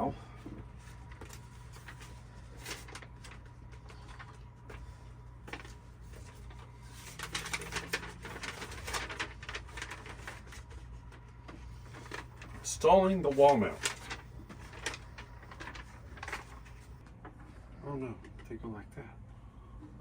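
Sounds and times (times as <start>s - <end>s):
steady low hum: 0.0s - 20.0s
clicks and rustling of packaging: 1.0s - 4.8s, 5.4s - 17.0s.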